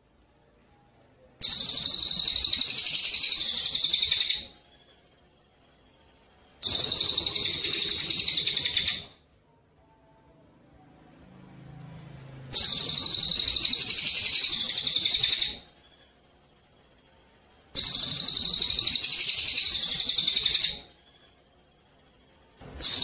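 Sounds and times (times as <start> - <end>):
songbird rattling trills: 6.6 - 9.1.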